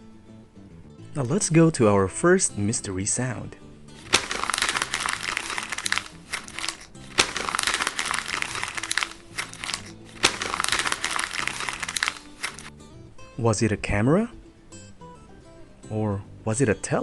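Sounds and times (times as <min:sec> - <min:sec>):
soft background music: 0:00.0 - 0:17.0
paper crumpling: 0:04.0 - 0:12.7.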